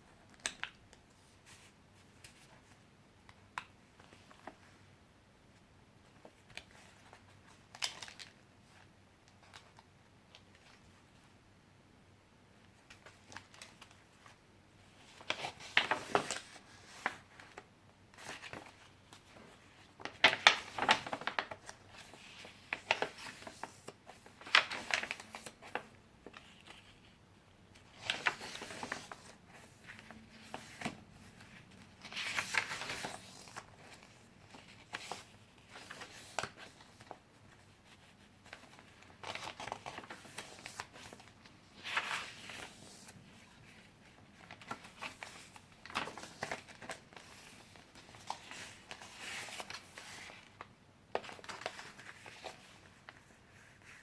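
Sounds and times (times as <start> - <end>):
paper pages turning: 15.1 - 27.2, 27.8 - 54.0.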